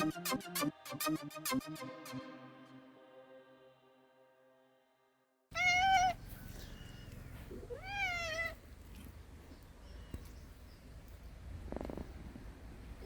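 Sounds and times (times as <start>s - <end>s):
cat meowing: 5.5s - 9.1s.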